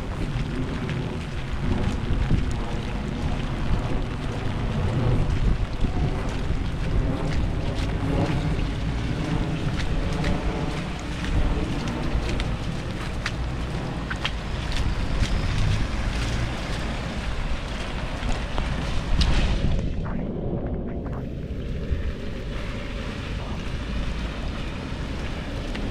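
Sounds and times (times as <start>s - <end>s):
rain hissing: 0.0s - 19.6s
wind buffeting microphone: 0.0s - 25.9s.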